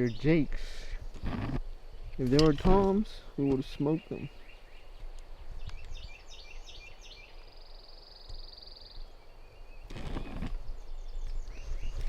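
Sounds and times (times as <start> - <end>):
low wind rumble: 0.0 - 3.5, 4.3 - 7.9
songbirds trilling and chirping: 0.0 - 12.0.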